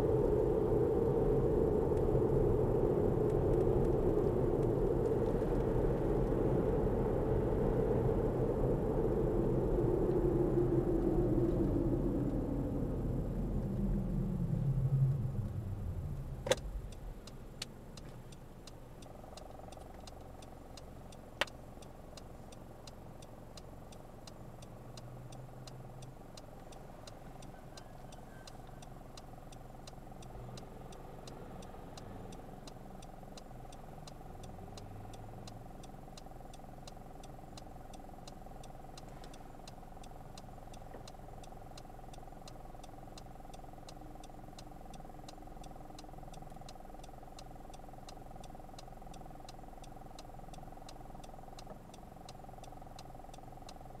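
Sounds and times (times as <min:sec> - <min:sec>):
car engine idling: 0:00.0 - 0:54.0
faint steady whine: 0:00.0 - 0:54.0
regular light ticking: 0:15.4 - 0:54.0.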